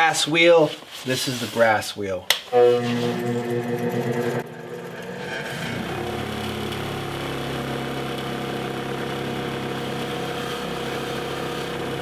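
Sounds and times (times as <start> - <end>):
electric motor humming: 2.5 - 12.0.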